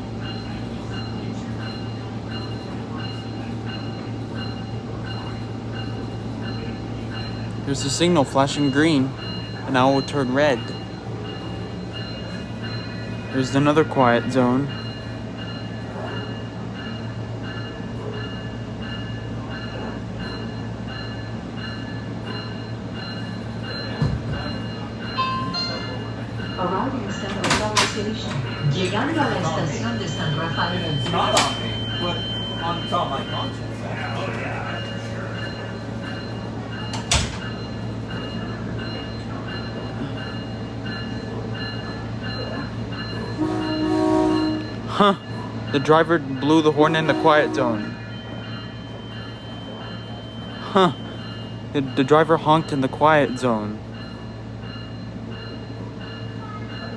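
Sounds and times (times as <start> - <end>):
crossing warning bell dinging: 0.0 - 56.9
train engine hum: 0.0 - 56.9
high electronic beep: 30.0 - 33.6
sharp clunk: 36.9 - 37.5.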